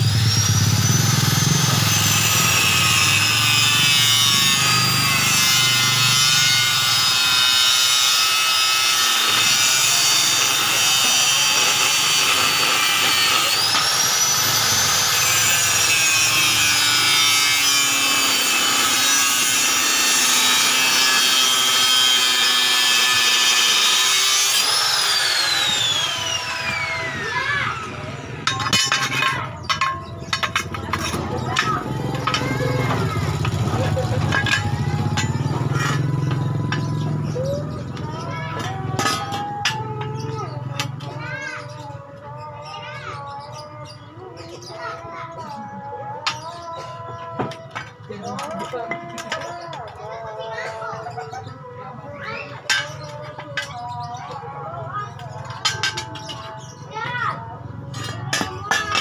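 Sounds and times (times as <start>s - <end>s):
power tool whining: 0.0s - 37.4s.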